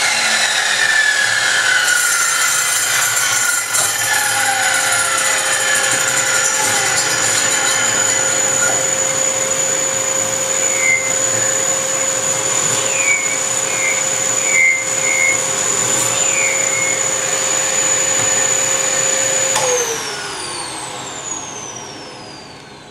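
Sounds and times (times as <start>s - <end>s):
power tool motor whining: 0.0s - 22.9s.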